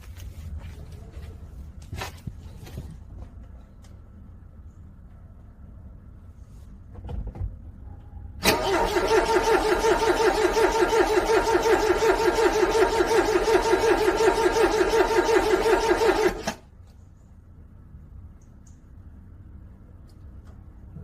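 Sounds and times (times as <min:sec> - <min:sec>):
car engine cranking on starter: 0:08.4 - 0:16.7.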